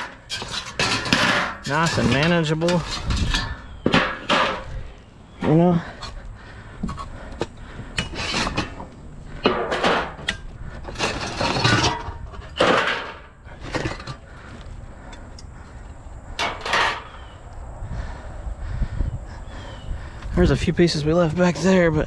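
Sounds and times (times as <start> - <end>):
scrap pieces scraping and clattering: 0.0 - 4.8, 8.0 - 14.5, 16.4 - 17.1.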